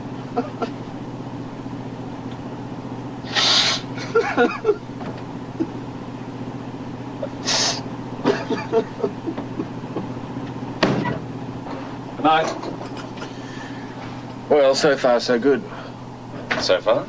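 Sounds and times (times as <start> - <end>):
boat engine hum: 0.0 - 17.0
loud hisses: 3.2 - 4.0, 7.4 - 7.9.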